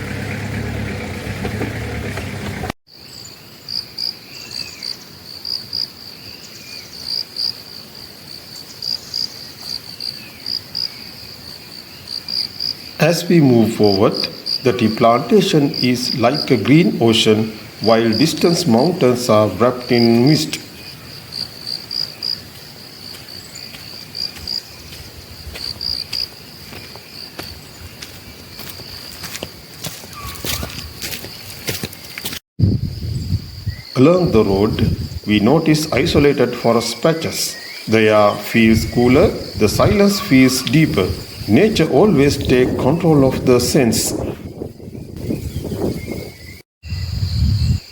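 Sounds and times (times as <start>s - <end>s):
insect chirps: 2.9s - 43.1s, 44.1s - 47.9s
insects trilling: 2.9s - 47.9s
faint whistled calls: 30.1s - 30.9s.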